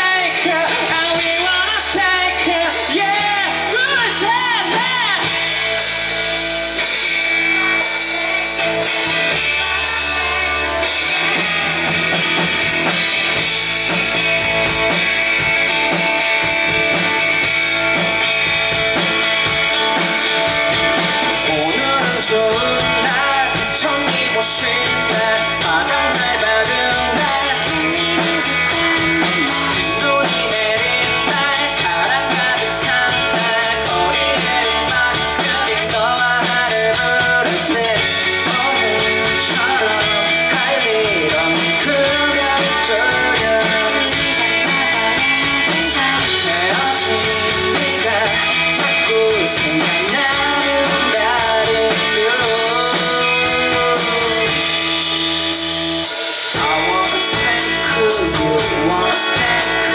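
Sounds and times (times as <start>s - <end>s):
indie rock band playing live: 0.0s - 59.9s.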